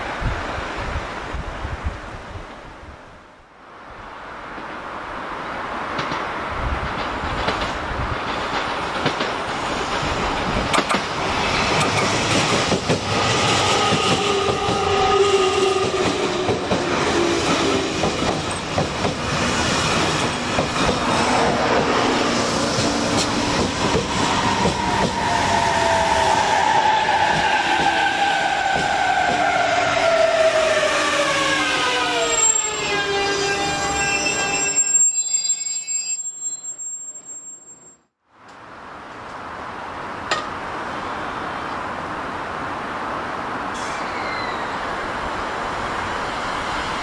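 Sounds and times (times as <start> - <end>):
train wheels rumbling on rails: 5.8 - 32.2
electric train whine: 11.2 - 37.8.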